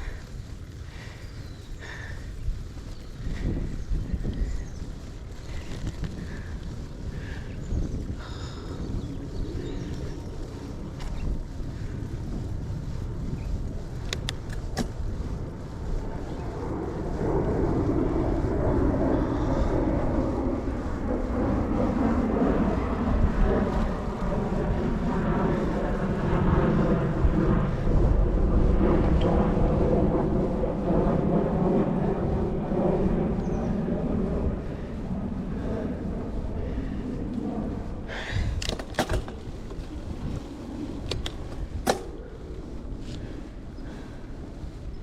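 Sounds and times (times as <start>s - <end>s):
wind rumbling on microphone: 0.0s - 45.0s
sharp clicks: 14.0s - 15.0s.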